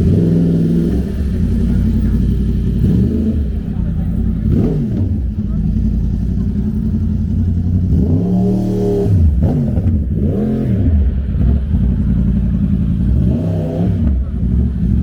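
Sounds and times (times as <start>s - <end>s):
engine revving: 0.0s - 15.0s
low traffic rumble: 0.0s - 15.0s.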